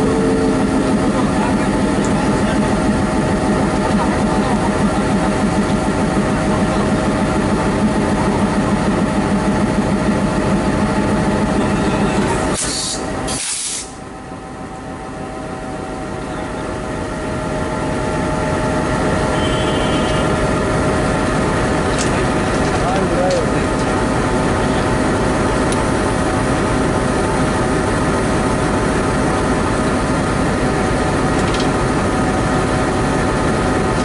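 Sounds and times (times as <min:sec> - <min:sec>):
locomotive droning hum: 0:00.0 - 0:34.0
air hiss: 0:12.6 - 0:14.0.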